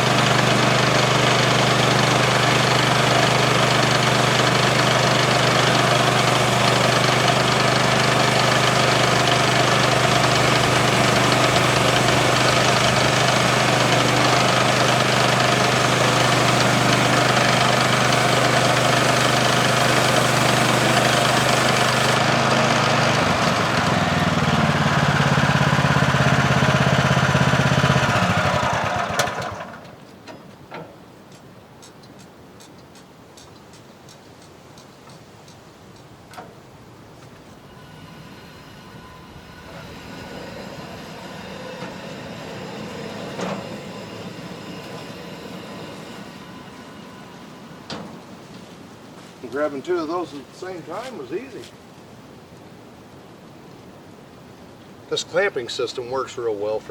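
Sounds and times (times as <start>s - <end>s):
saw cutting hiss: 0.0s - 29.3s, 37.6s - 48.4s
small gas engine running: 0.0s - 30.0s, 37.4s - 48.5s.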